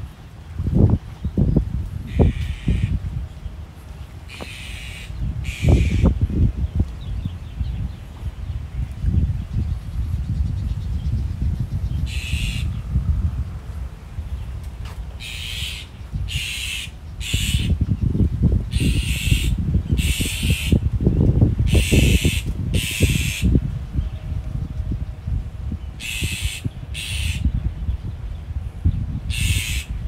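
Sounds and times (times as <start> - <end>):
gusty low rumble: 0.0 - 30.0
bird harsh calls: 2.0 - 3.6, 4.2 - 8.9, 11.8 - 12.9, 15.0 - 18.0, 18.7 - 20.9, 21.7 - 23.6, 25.9 - 27.9, 29.3 - 30.0.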